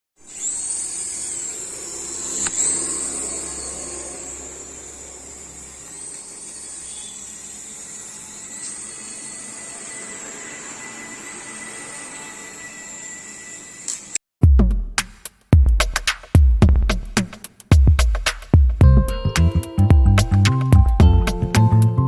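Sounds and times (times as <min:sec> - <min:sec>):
toy helicopter rotor motor whine: 0:00.2 - 0:14.2.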